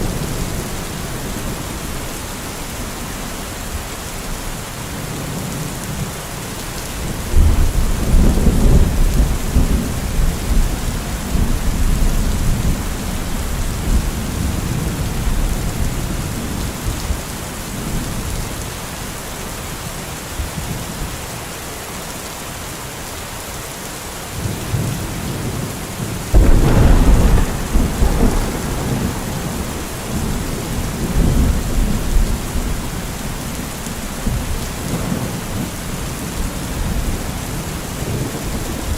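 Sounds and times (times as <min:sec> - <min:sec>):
steady rain: 0:00.0 - 0:38.9
thunder rumbling: 0:26.3 - 0:33.6.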